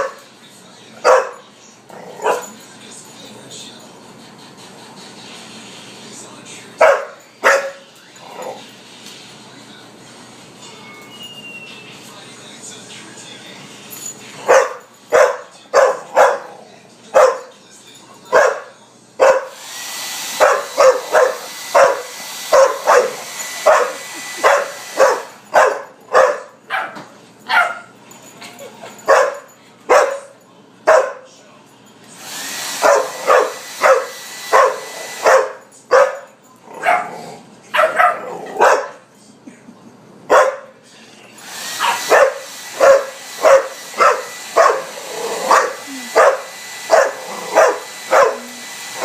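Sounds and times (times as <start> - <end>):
dog barking: 0.0 - 0.2, 1.0 - 1.4, 2.1 - 2.6, 6.8 - 7.9, 14.5 - 17.5, 18.3 - 19.6, 20.4 - 28.0, 29.1 - 31.3, 32.8 - 39.0, 40.3 - 40.8, 41.8 - 48.5
blow dryer hissing: 4.7 - 10.6, 18.4 - 26.5, 32.0 - 35.7, 41.3 - 49.0.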